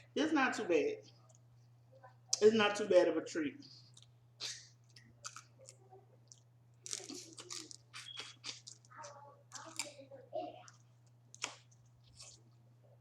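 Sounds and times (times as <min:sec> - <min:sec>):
steady low hum: 0:00.0 - 0:13.0
chewing: 0:03.8 - 0:10.0, 0:10.6 - 0:12.7.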